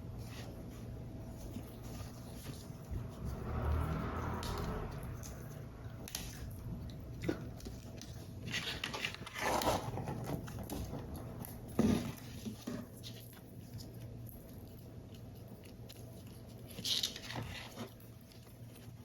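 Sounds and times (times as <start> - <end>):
paper rustling and scraping: 0.0 - 4.2, 7.3 - 11.2.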